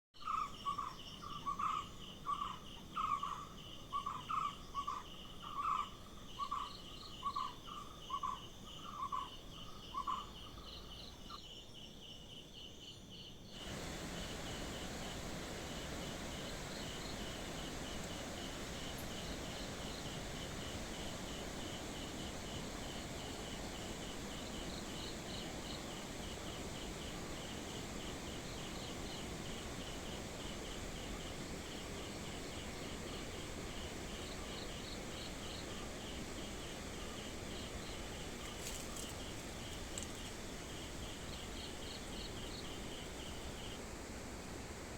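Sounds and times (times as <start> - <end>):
insects chirping trill: 0.2 - 44.9
steady rushing hiss: 13.5 - 44.9.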